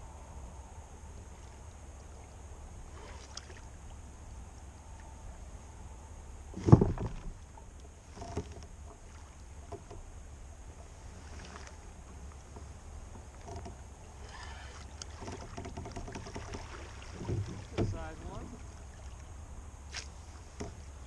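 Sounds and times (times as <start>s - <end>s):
low steady rumble: 0.0s - 21.0s
knocking on kayak: 15.3s - 18.6s.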